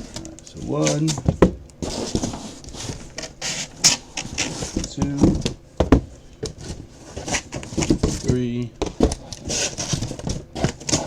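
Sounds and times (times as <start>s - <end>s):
cardboard boxes scraping and rustling: 0.0s - 5.4s, 6.6s - 11.0s
cardboard boxes knocking: 4.7s - 6.7s.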